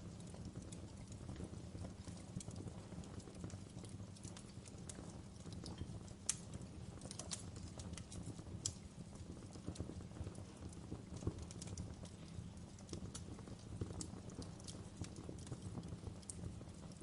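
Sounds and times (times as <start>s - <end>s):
burning wood rumbling: 0.0s - 17.0s
fire pops and snaps: 0.0s - 17.0s.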